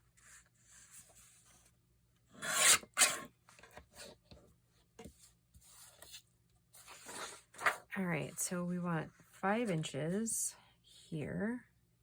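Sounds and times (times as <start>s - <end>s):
paper rustling: 6.8s - 7.9s
paper scraping across surface: 6.8s - 7.9s.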